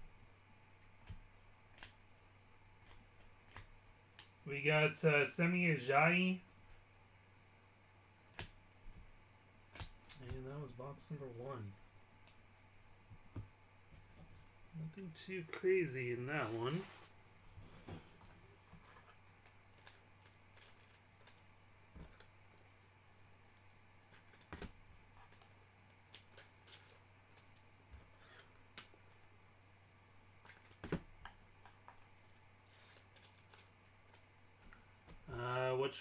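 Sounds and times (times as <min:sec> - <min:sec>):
steady low hum: 0:00.0 - 0:36.0
card boxes and wrappers handled: 0:16.4 - 0:35.3.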